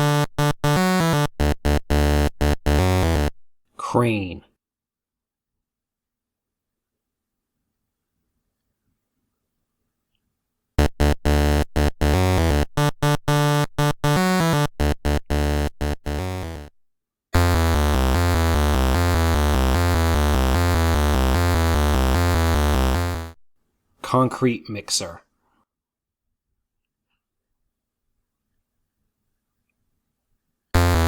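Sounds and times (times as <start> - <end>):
electronic music: 0.0 - 3.4, 10.8 - 16.7, 17.4 - 23.4, 30.8 - 31.0.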